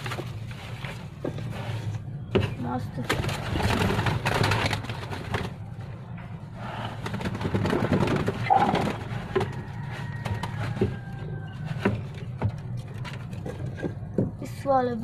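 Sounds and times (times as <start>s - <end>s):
pigeons cooing: 8.4s - 9.2s.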